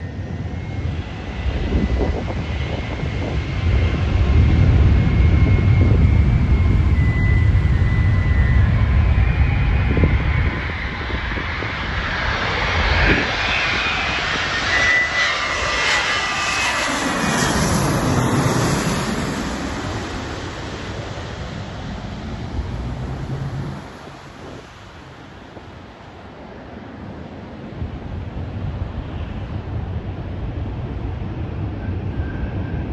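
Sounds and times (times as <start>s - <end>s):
jet airliner flying past: 0.0s - 32.9s.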